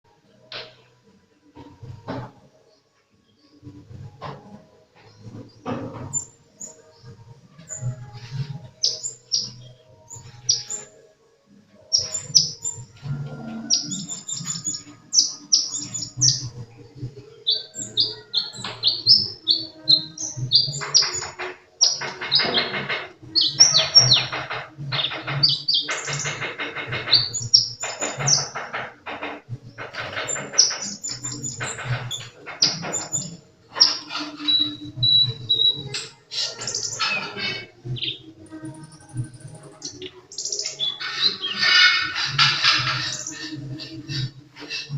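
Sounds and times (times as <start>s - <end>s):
sunbird singing: 8.8s - 10.9s, 11.9s - 26.4s, 30.2s - 44.9s.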